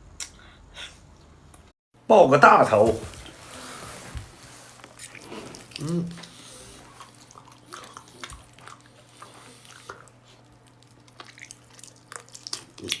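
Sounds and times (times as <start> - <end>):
wet chewing: 4.8 - 13.0.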